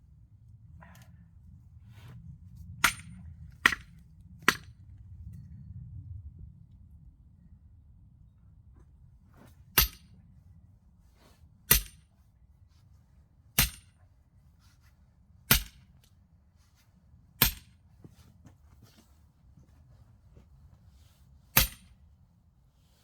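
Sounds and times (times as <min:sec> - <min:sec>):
axe striking log: 0:02.8 - 0:03.9, 0:09.8 - 0:10.0, 0:11.7 - 0:12.0, 0:13.6 - 0:13.9, 0:15.5 - 0:15.8, 0:17.4 - 0:17.8, 0:21.6 - 0:21.9.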